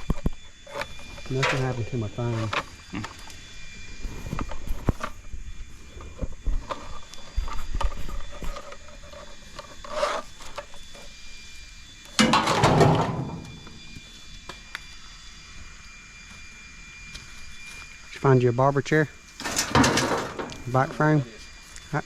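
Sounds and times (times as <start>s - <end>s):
scrap metal knocking and scraping: 12.2s - 13.7s, 19.4s - 20.6s
clattering metal scrape: 12.2s - 13.8s, 19.4s - 20.6s.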